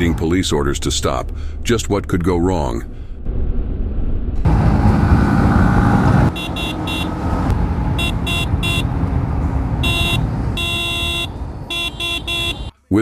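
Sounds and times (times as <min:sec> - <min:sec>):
road traffic: 0:00.0 - 0:12.8
vehicle horn honking: 0:06.3 - 0:07.3, 0:07.9 - 0:09.0, 0:09.8 - 0:12.7.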